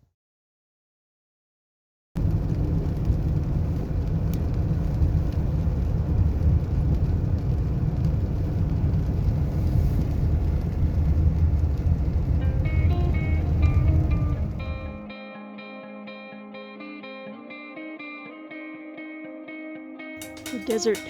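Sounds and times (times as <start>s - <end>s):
car road rumble: 2.2s - 15.0s.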